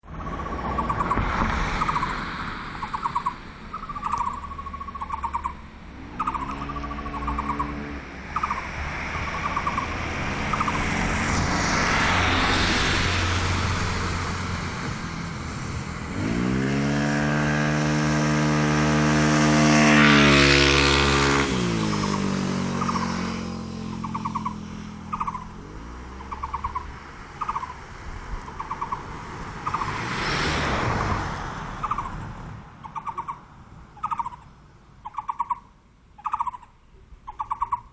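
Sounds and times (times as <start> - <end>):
motor vehicles driving past: 0.0 - 37.9
bird wavering call: 2.8 - 7.8, 8.4 - 10.8, 21.8 - 23.2, 23.9 - 25.5, 26.2 - 27.8, 28.5 - 29.0, 31.8 - 32.2, 32.8 - 33.4, 34.0 - 37.9.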